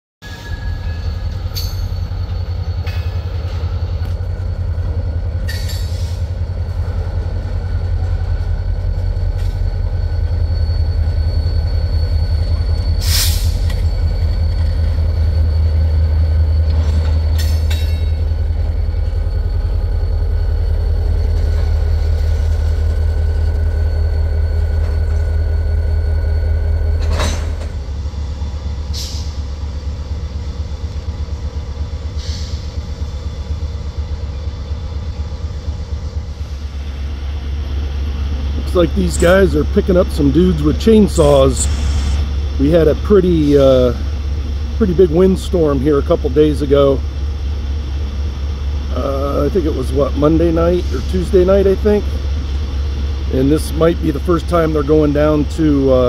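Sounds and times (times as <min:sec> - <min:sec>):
faint high squeal: 0:00.2 - 0:04.1, 0:08.4 - 0:27.6
diesel locomotive engine rumble: 0:00.2 - 0:56.0
sharp clanks: 0:01.4 - 0:02.2, 0:05.4 - 0:06.2, 0:16.7 - 0:18.3.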